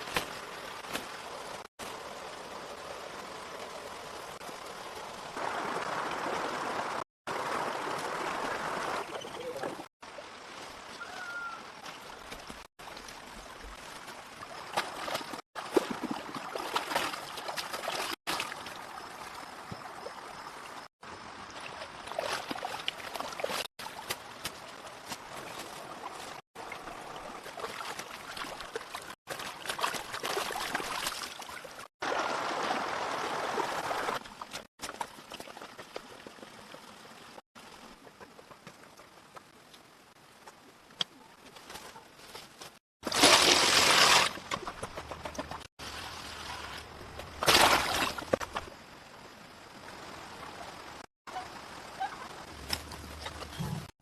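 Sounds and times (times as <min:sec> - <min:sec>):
trickling water: 0:11.8 - 0:39.8.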